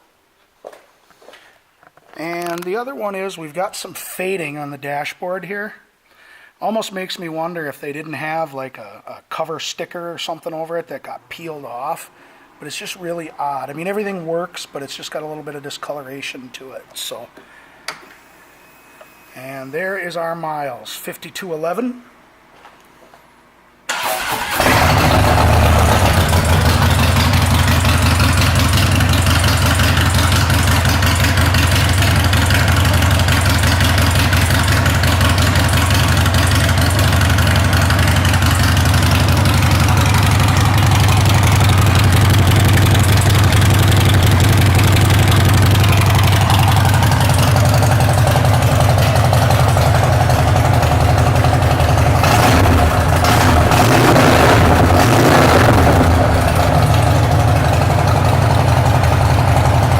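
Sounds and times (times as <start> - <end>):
motorcycle engine starting and idling: 23.9 - 59.9.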